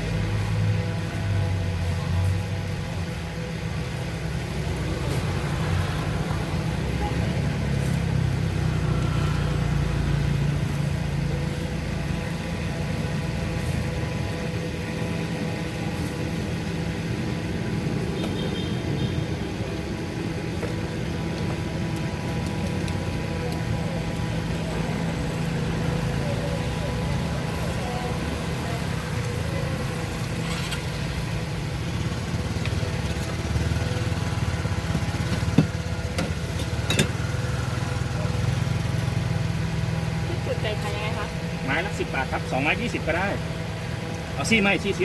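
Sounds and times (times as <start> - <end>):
vehicle engine running: 0.0 - 45.0.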